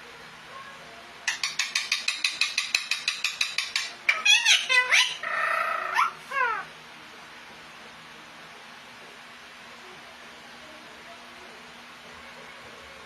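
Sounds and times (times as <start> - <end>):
parrot sharp chirps: 1.3 - 6.6
parrot buzzy call: 1.3 - 6.7
parrot sweeping squawks: 1.3 - 6.7.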